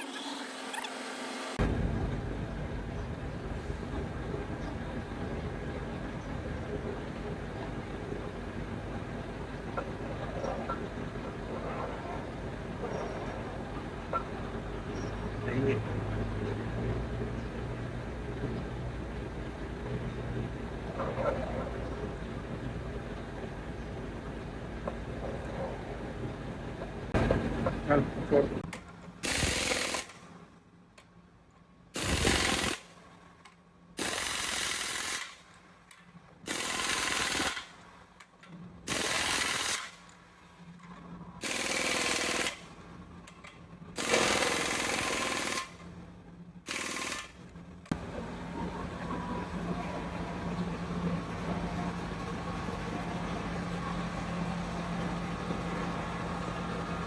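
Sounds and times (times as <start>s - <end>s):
machine noise with low hum: 0.0s - 57.0s
pneumatic impact wrench bursts: 29.2s - 30.2s, 32.0s - 32.9s, 34.0s - 35.4s, 36.5s - 37.7s, 38.9s - 40.0s, 41.4s - 42.6s, 44.0s - 45.8s, 46.7s - 47.4s.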